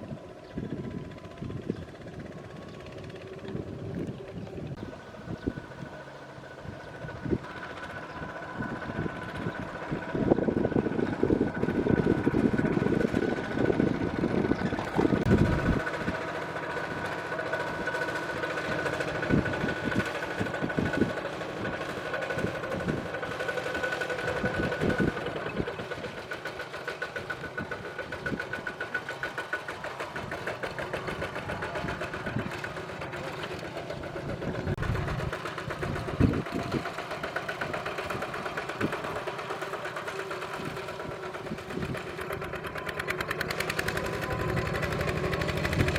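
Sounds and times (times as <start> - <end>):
power tiller motor chugging: 0.0 - 45.9.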